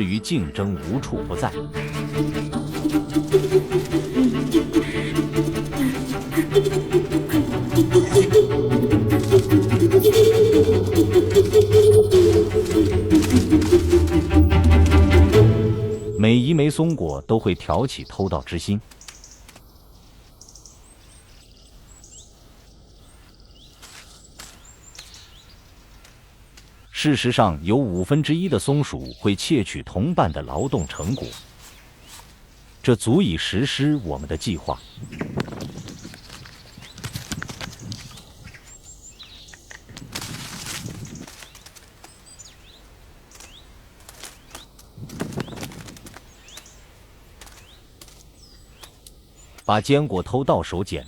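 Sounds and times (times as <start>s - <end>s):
small birds chirping: 0.0s - 51.0s
high bird chirps: 1.8s - 22.4s
rustle: 18.8s - 27.0s, 30.8s - 33.0s, 34.8s - 49.7s.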